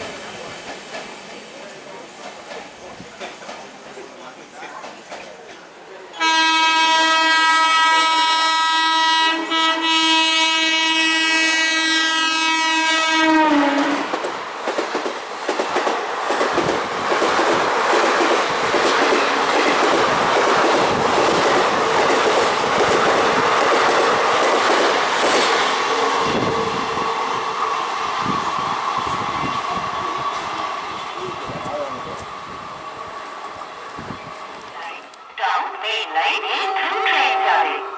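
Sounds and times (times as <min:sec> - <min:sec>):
train coaches clattering over rails: 0:00.0 - 0:06.3, 0:13.6 - 0:35.3
train horn long note: 0:06.2 - 0:14.1, 0:36.3 - 0:37.9.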